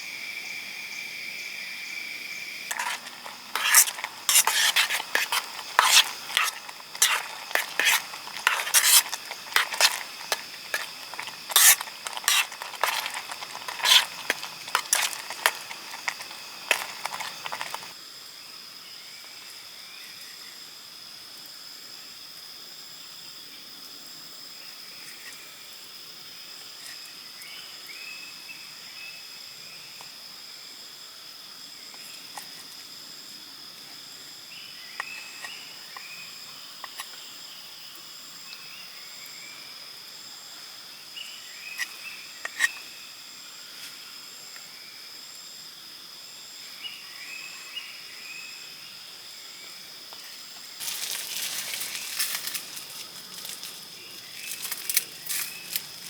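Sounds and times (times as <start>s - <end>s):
insect drone: 0.0s - 56.0s
utensil stirring in a pan: 2.7s - 17.9s.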